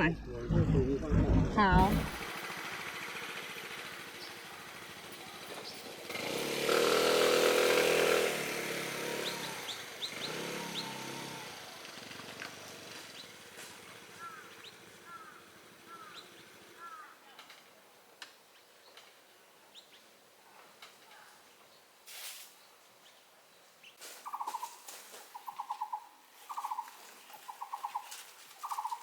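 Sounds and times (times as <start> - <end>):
motorcycle engine revving: 0.0 - 17.0
birds chirping: 9.1 - 17.7, 22.6 - 29.0.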